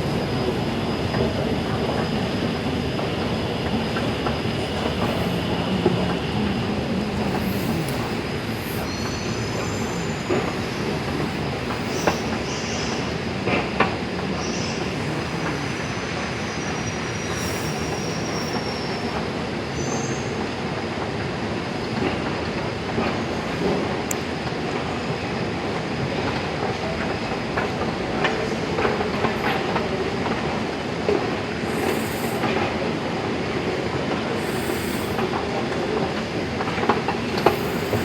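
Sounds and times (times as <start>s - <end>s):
train rumbling on rails: 0.0s - 38.0s
high wheel squeals: 1.0s - 13.2s, 14.4s - 19.2s.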